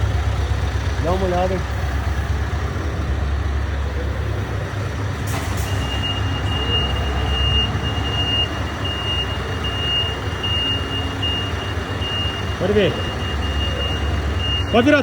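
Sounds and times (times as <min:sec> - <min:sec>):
diesel truck idling: 0:00.0 - 0:15.0
reversing alarm beeping: 0:05.4 - 0:15.0.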